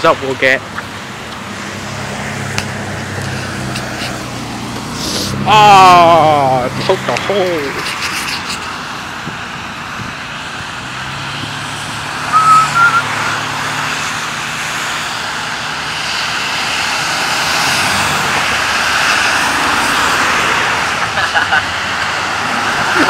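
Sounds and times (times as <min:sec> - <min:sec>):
rain and traffic on wet road: 0:00.0 - 0:23.0
vehicle passing: 0:00.4 - 0:23.0
brief high chirp: 0:12.2 - 0:13.1.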